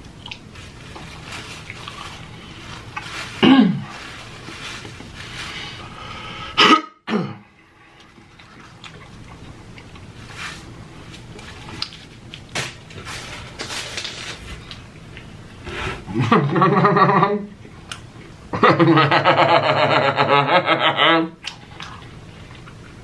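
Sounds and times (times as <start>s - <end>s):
chewing and wet mouth noises: 0.1s - 3.1s, 8.0s - 10.2s, 21.4s - 23.0s
man coughing: 3.4s - 3.9s, 6.6s - 7.4s.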